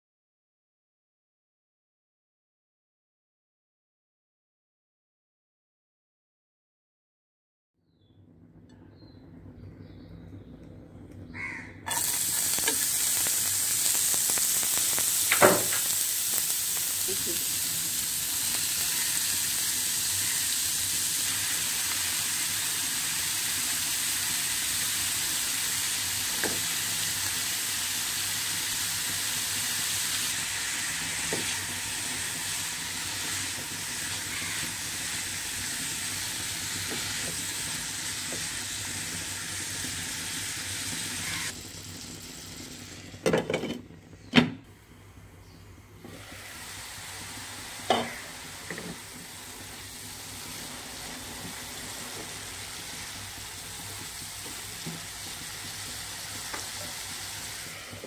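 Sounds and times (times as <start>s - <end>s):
vegetables sizzling in oil: 11.9s - 43.7s, 46.0s - 58.0s.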